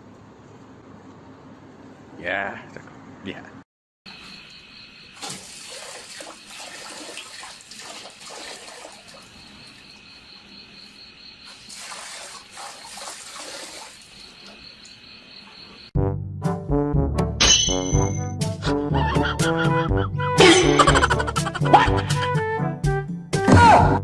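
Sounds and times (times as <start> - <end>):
insects trilling: 4.1 - 15.9.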